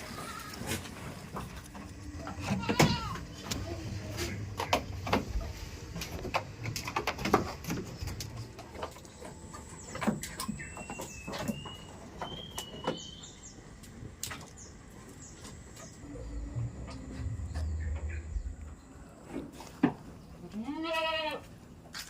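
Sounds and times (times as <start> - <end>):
sharp clicks and knocks: 4.5 - 13.1.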